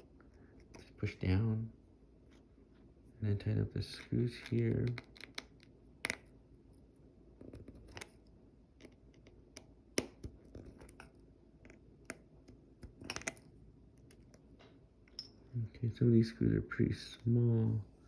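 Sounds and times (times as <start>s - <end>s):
screwdriver clicks and scratches: 4.4s - 6.2s, 8.8s - 14.4s.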